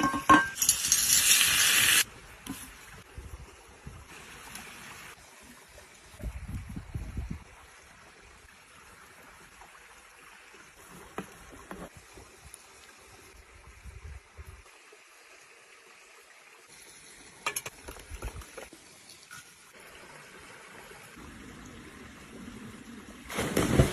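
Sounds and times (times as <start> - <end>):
faint moving water: 2.0 - 23.9.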